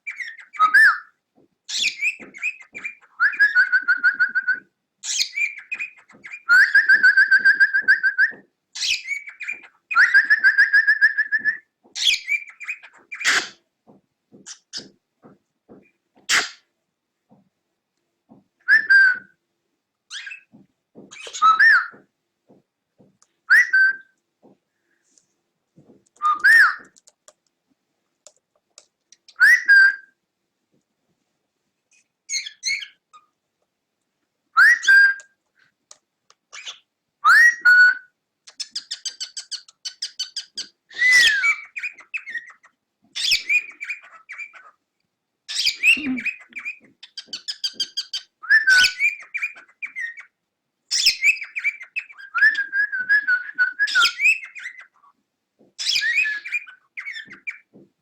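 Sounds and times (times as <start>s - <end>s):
cockatiel whistling and warbling: 0.1s - 13.6s, 16.3s - 16.6s, 18.6s - 19.3s, 20.1s - 20.5s, 21.1s - 22.0s, 23.5s - 24.1s, 26.2s - 26.9s, 29.3s - 30.2s, 32.3s - 33.0s, 34.6s - 35.3s, 36.6s - 44.8s, 45.5s - 50.3s, 50.9s - 55.1s, 55.8s - 57.7s.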